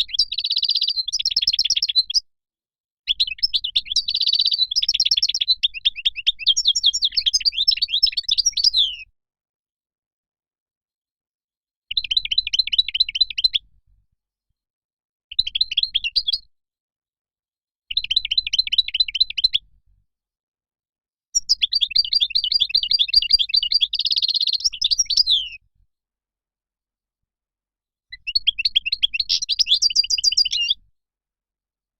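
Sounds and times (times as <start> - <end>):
bird twittering: 0.0 - 2.2, 3.1 - 9.0, 21.4 - 25.6, 28.1 - 30.8.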